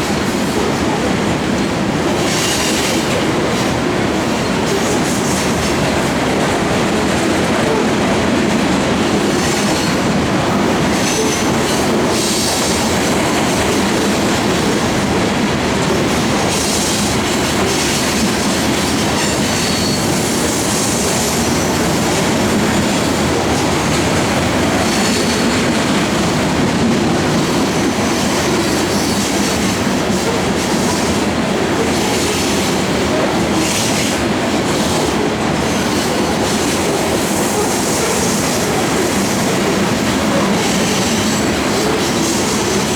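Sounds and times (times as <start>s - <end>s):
freight cars rolling on rails: 0.0s - 42.9s
high wheel squeals: 19.1s - 23.2s.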